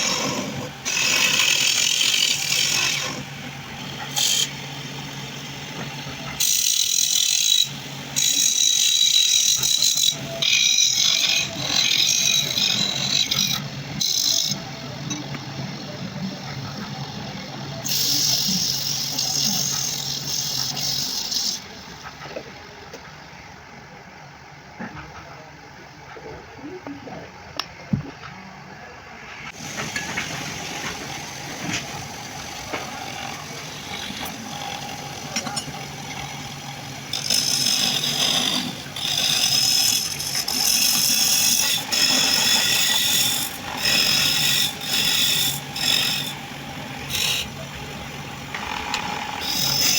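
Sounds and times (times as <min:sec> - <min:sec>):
steady hum with hiss: 0:00.0 - 0:49.9
rasping strokes on wood: 0:29.5 - 0:49.9.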